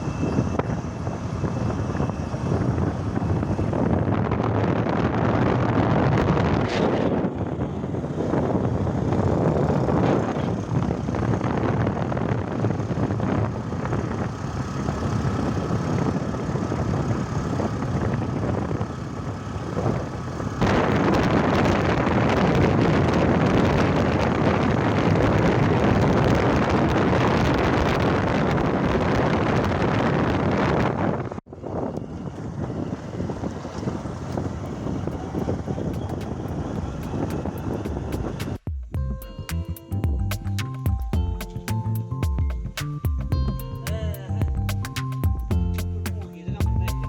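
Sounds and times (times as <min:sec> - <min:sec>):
motorcycle engine: 0:00.0 - 0:47.0
wind rushing over microphone: 0:00.0 - 0:47.0.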